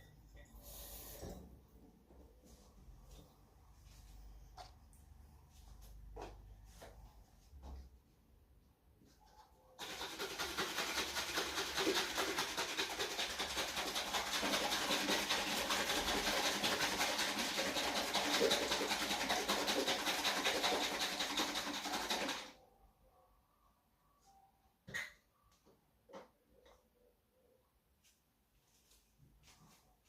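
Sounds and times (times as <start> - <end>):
tap water running into bottle: 9.8 - 22.5.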